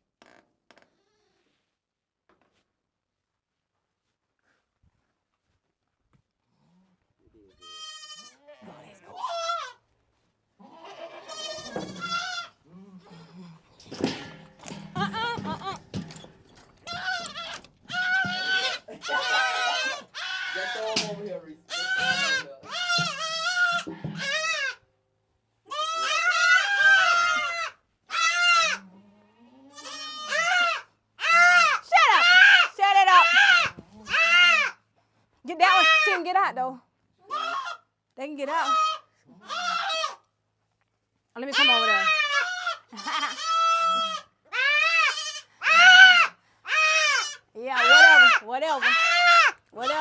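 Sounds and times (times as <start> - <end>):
goats bleating loudly: 7.5 - 9.8, 10.6 - 24.8, 25.7 - 28.9, 29.7 - 34.8, 35.6 - 36.3, 37.2 - 37.9, 38.5 - 40.2, 41.5 - 50.0.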